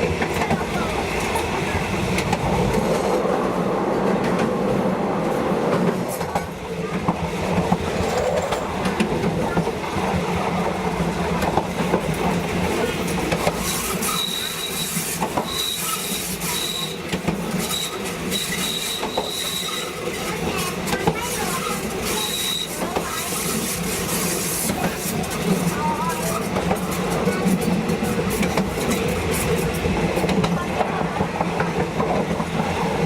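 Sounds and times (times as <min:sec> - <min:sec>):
rail clicks: 0:00.0 - 0:33.0
train rumbling on track: 0:00.0 - 0:33.0
high wheel squeal: 0:14.0 - 0:17.0.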